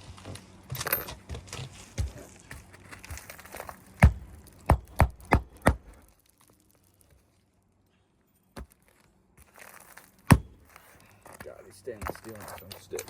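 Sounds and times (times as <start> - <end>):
hammer striking roof shingle: 1.1 - 6.1, 10.3 - 11.4.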